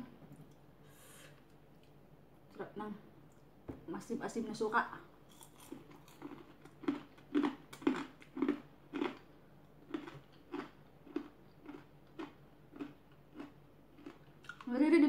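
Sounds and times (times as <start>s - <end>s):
chewing crispy food: 5.3s - 14.8s.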